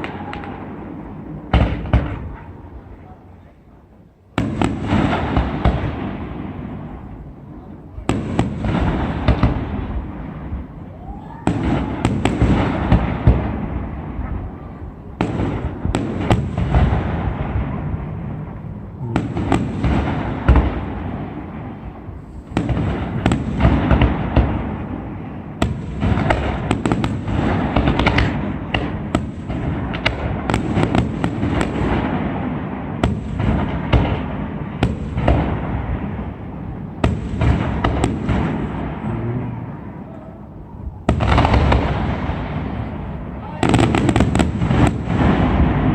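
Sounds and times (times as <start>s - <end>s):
rumbling echo: 4.5s - 45.9s
rapid crackling bangs: 25.6s - 32.2s.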